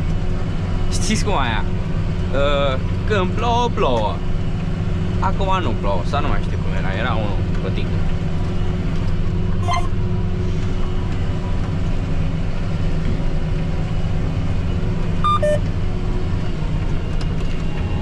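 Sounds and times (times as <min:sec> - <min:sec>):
tractor diesel engine under load: 0:00.0 - 0:18.0
electronic beeps: 0:09.6 - 0:09.9, 0:15.2 - 0:15.6.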